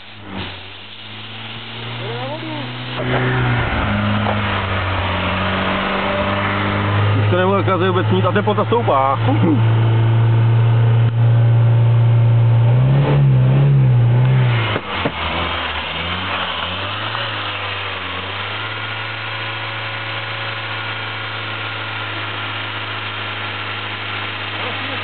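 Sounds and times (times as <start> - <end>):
car engine running: 0.0 - 25.0
thump: 14.7 - 15.2.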